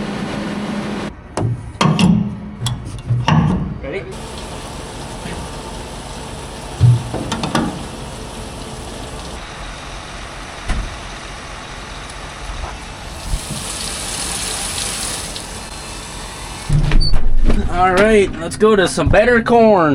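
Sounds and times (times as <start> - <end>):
farm vehicle engine running: 4.1 - 17.0.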